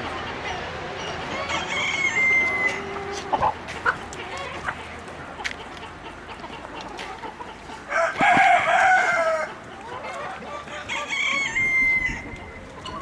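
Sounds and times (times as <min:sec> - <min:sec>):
rooster crowing: 0:07.9 - 0:09.5.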